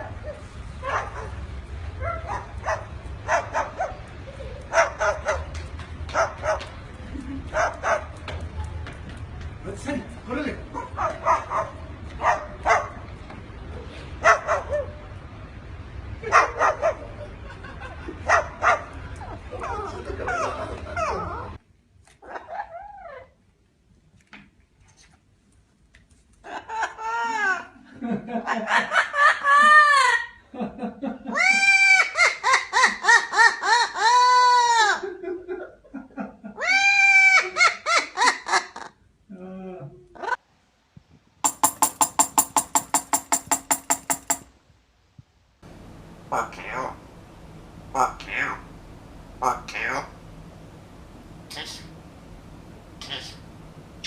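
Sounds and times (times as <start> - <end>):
parrot calling: 46.1 - 47.2, 47.8 - 50.5, 51.4 - 52.1, 52.9 - 54.0.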